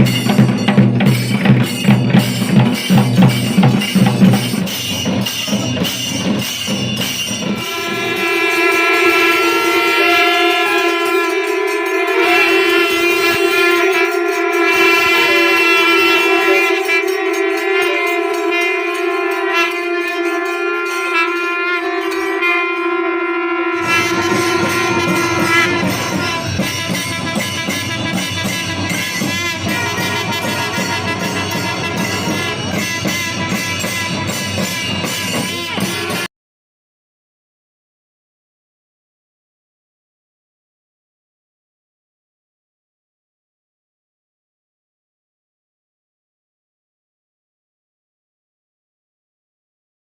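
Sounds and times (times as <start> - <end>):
drums playing fast rhythm: 0.0 - 20.6, 23.8 - 36.3
wind instrument holding a note: 5.4 - 36.3.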